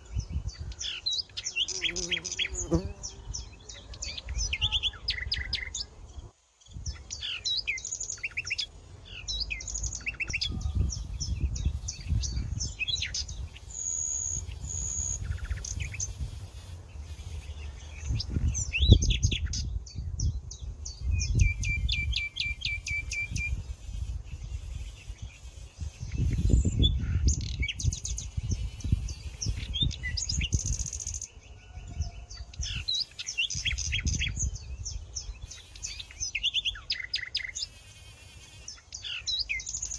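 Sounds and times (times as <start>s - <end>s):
songbirds chirping and singing: 0.0s - 23.6s, 24.3s - 37.8s, 38.6s - 39.9s
high bird trill: 20.9s - 39.9s.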